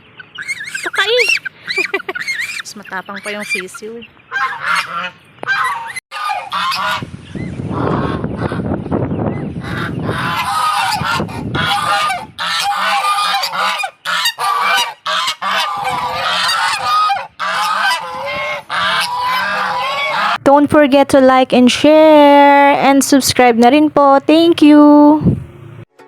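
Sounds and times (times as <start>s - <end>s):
geese honking: 0.0s - 8.8s, 9.6s - 20.4s.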